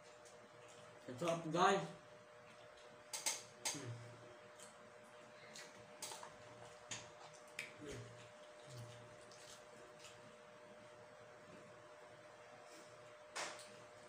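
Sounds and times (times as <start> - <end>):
faint chewing: 0.0 - 1.2, 4.5 - 10.5
mouth clicks and lip smacks: 6.9 - 10.2.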